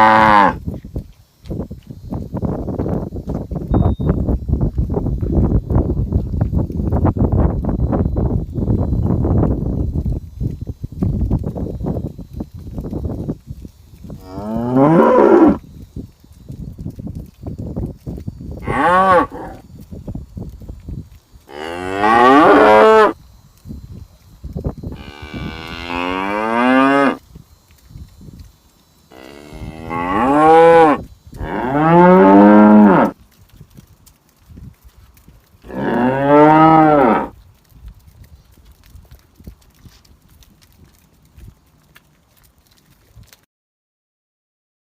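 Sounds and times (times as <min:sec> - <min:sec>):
cattle mooing: 0:00.0 - 0:00.6, 0:14.2 - 0:15.6, 0:18.6 - 0:19.6, 0:21.5 - 0:23.2, 0:24.9 - 0:27.2, 0:29.1 - 0:33.2, 0:35.7 - 0:37.3.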